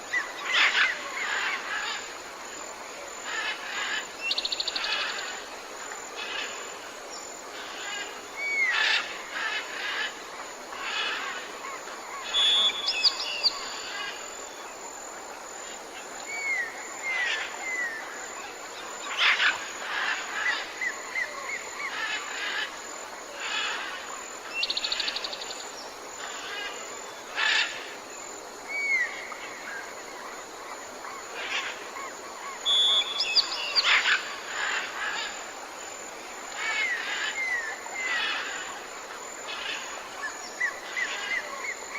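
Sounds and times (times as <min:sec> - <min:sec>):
background hiss: 0:00.0 - 0:41.9
birds whistling and chirping: 0:12.3 - 0:13.8, 0:32.6 - 0:34.0
bird trill: 0:32.7 - 0:34.0.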